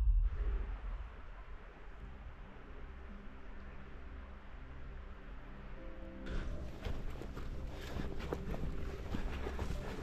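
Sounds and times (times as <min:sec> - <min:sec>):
footsteps on woodland path: 0:06.3 - 0:10.0.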